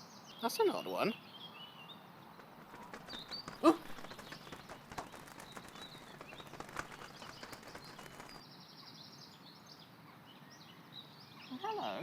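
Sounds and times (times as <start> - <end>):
small bird chirping: 0.7 - 9.0.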